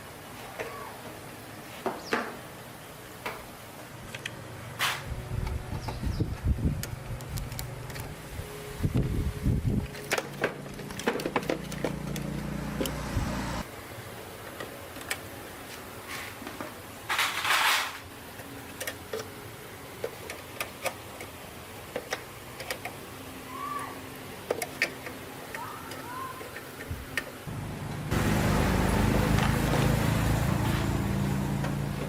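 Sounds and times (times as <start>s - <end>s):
small motorbike engine running: 5.1s - 13.7s, 27.5s - 32.0s.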